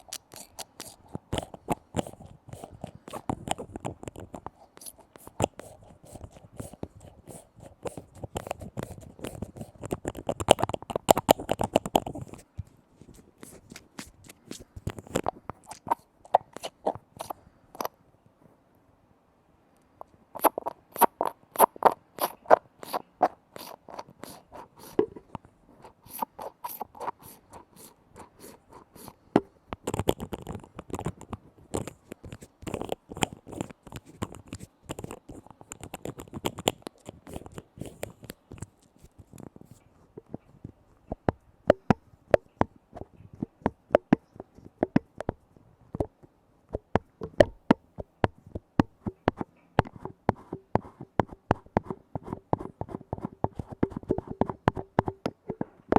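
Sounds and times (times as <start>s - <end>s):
scratchy scraping: 0.0s - 17.9s, 20.4s - 29.3s, 29.9s - 41.2s.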